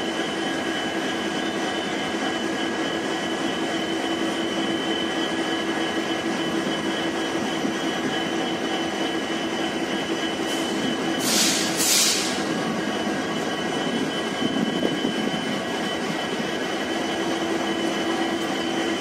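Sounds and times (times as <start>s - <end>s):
train rumble: 0.0s - 19.0s
short hisses: 11.2s - 12.4s.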